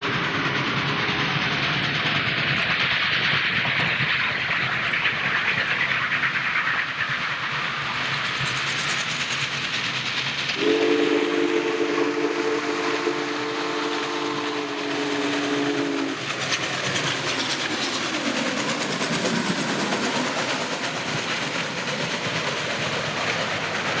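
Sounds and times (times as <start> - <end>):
steam locomotive running noise: 0.0 - 24.0
chord steam whistle: 10.6 - 16.6
wheel-on-rail clatter: 14.4 - 24.0.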